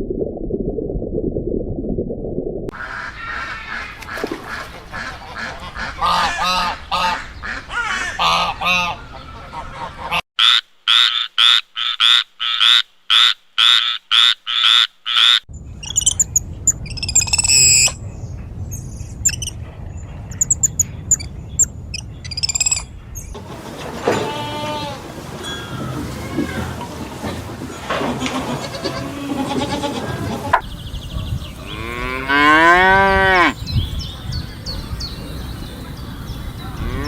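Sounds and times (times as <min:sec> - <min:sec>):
evenly spaced animal calls: 0:05.8 - 0:18.0, 0:20.3 - 0:30.7
high squawking calls: 0:11.0 - 0:18.0, 0:18.8 - 0:19.6, 0:20.3 - 0:23.3.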